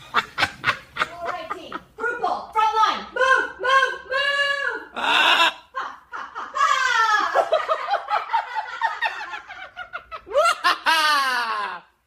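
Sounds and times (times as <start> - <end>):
high-pitched cackling laughter: 5.0 - 12.0.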